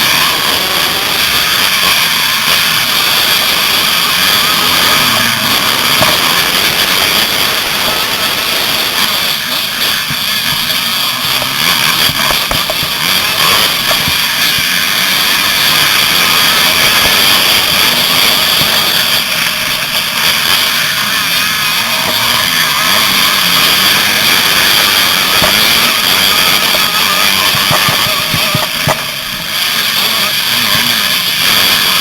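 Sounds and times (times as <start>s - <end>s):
motocross bike engine running hard: 0.0s - 32.0s.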